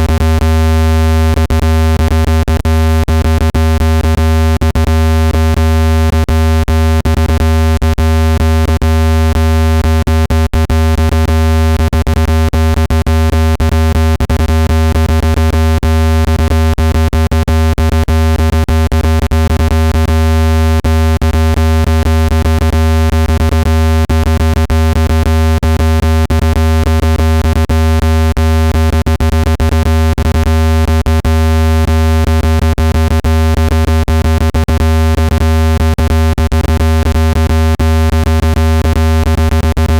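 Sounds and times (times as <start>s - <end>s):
loud buzzy low hum tone: 0.0s - 39.9s.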